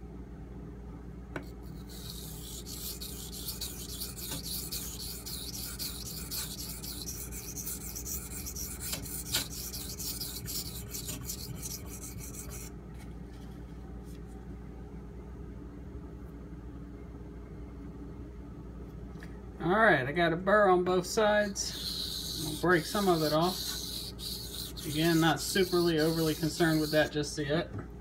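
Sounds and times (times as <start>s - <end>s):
low steady hum: 0.0s - 28.0s
blade scraping on whetstone: 1.7s - 12.7s, 21.4s - 27.2s.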